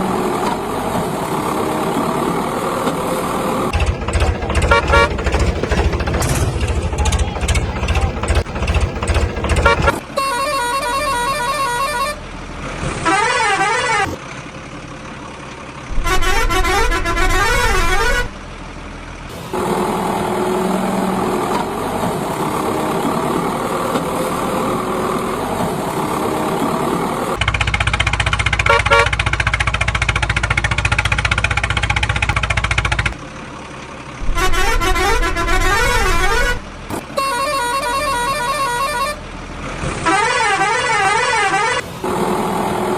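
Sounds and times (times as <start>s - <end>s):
engine rumble: 0.0s - 40.2s, 41.0s - 42.9s
vehicle horns warbling: 3.7s - 12.2s, 13.1s - 14.2s, 15.9s - 18.4s, 28.6s - 29.2s, 34.2s - 39.3s, 40.0s - 42.2s.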